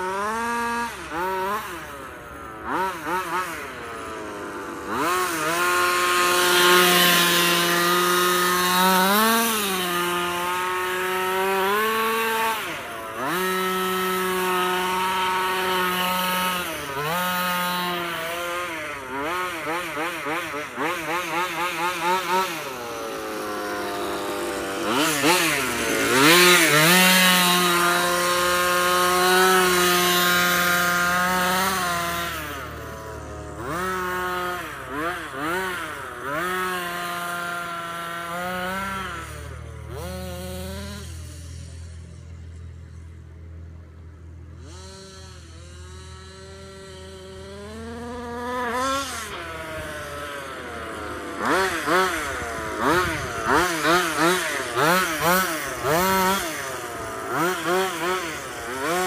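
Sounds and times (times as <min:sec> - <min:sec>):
small two-stroke engine revving: 0:00.0 - 0:59.0.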